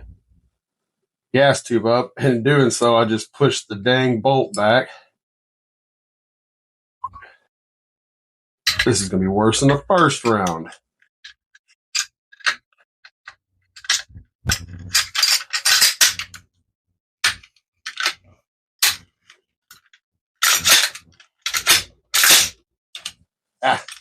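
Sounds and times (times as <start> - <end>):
rifle parts clicking: 18.8 - 23.2.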